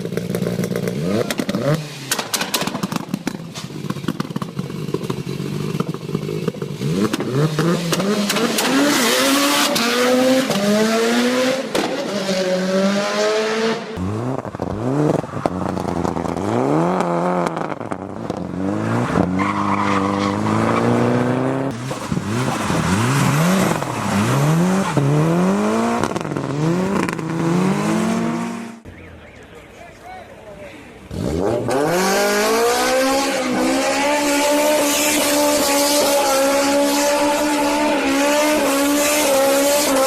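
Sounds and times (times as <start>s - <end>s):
racing car engine revving: 6.8s - 28.9s, 31.0s - 40.0s.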